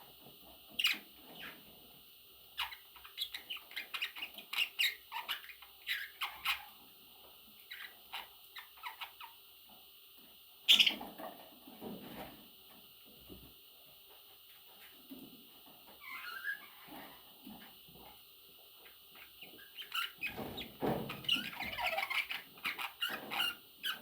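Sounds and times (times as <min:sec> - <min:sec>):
parrot chicks cheeping: 0:00.7 - 0:01.6, 0:02.6 - 0:06.8, 0:07.6 - 0:09.4, 0:10.6 - 0:11.2, 0:16.0 - 0:17.2, 0:18.8 - 0:24.0.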